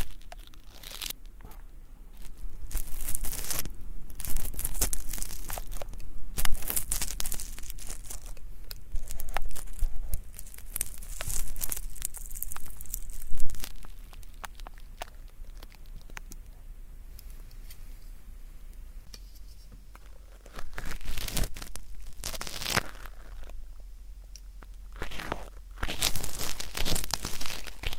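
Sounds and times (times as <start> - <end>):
ear pick scraping earwax: 0.0 - 18.2, 19.0 - 23.7, 24.4 - 27.9.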